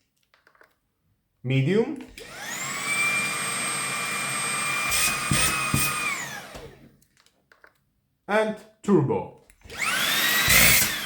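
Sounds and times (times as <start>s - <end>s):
vacuum motor whining: 2.1s - 6.9s, 9.7s - 11.0s.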